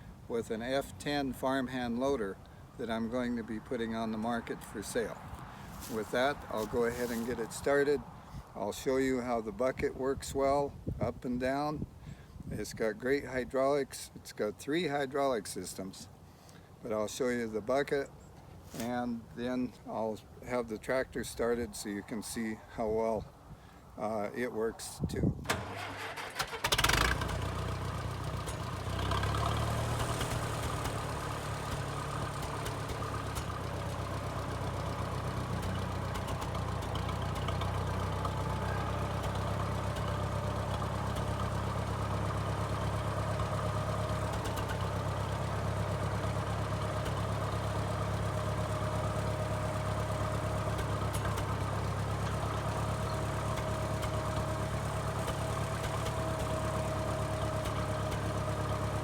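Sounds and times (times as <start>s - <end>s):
tractor engine idling: 0.0s - 8.0s, 25.5s - 59.0s.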